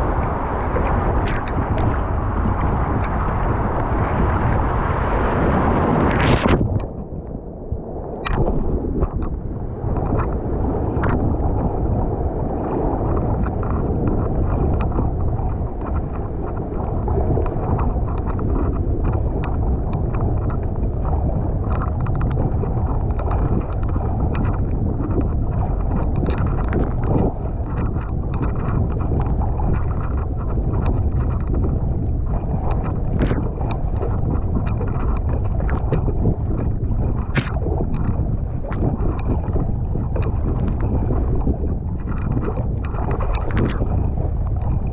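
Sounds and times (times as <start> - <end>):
water rushing: 0.0 - 44.9
wind rumbling on microphone: 0.0 - 44.9.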